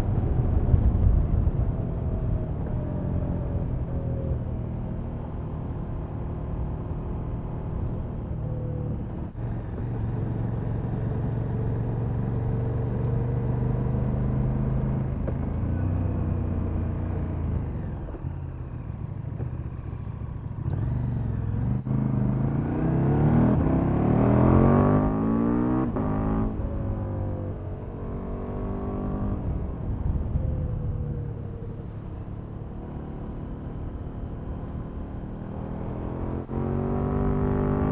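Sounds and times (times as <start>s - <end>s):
motorcycle engine revving: 13.6s - 37.9s.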